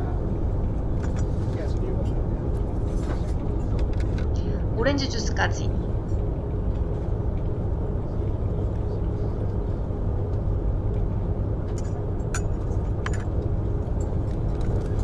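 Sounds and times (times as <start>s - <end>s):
faint steady hum: 0.0s - 15.0s
train rumble inside carriage: 0.0s - 15.0s.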